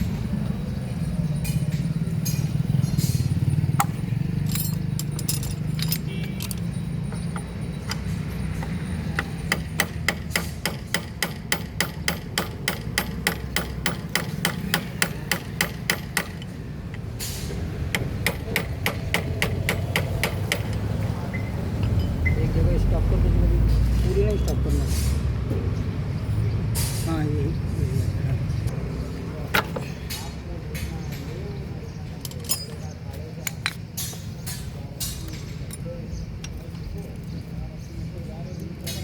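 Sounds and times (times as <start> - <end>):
constant low hum: 0.0 - 22.7.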